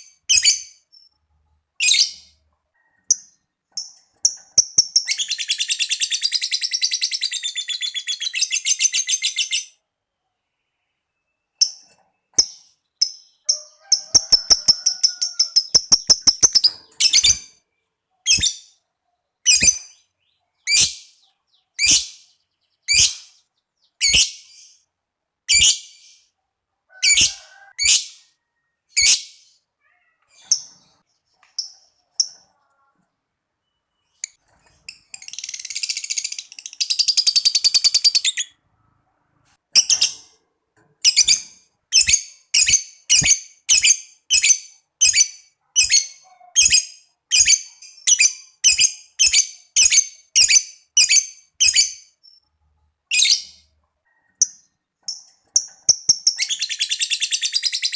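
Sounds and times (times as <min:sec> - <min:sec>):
bird sharp chirps: 0:01.8 - 0:24.9
bird chattering trill: 0:13.3 - 0:17.4.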